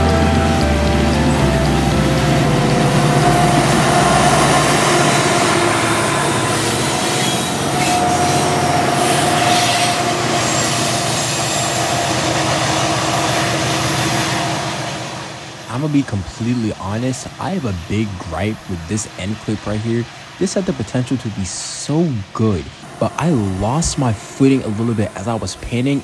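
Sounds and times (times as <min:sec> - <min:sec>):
high flange squeal: 0:00.0 - 0:18.7
train wheels rumbling: 0:00.0 - 0:26.0.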